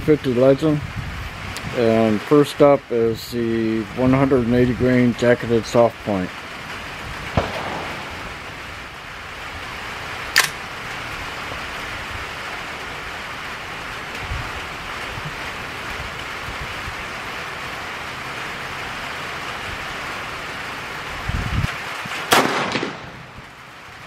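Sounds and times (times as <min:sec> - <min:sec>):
rain hissing: 0:00.0 - 0:24.0
sharp click: 0:10.4 - 0:10.6.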